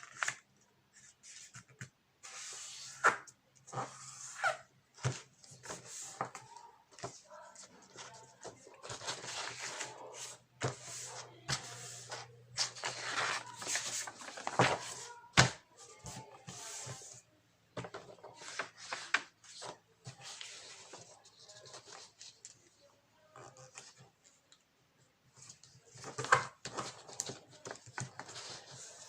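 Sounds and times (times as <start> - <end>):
paper rustling and crinkling: 5.0 - 17.2, 17.8 - 22.7, 25.4 - 29.0.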